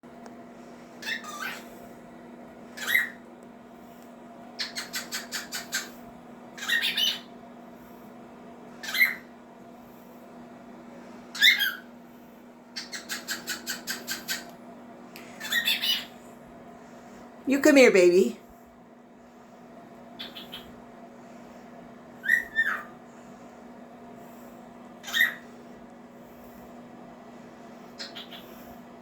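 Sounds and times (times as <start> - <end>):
cockatiel squawks: 1.0 - 1.7, 2.8 - 3.2, 6.6 - 7.3, 8.8 - 9.3, 11.3 - 11.9, 15.4 - 16.1, 20.2 - 20.7, 22.2 - 22.9, 25.0 - 25.4, 28.0 - 28.5.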